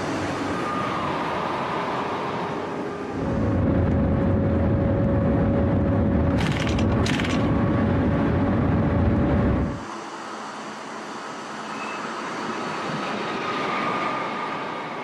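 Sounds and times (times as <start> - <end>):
deep rumbling inside train cabin: 0.0 - 15.0
train rushing past: 9.6 - 15.0.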